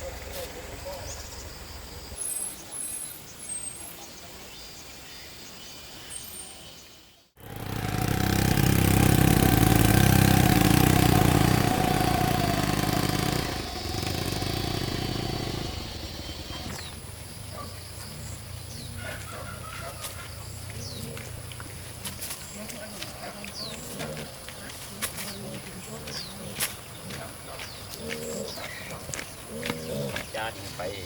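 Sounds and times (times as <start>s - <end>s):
small engine running: 7.4s - 17.3s.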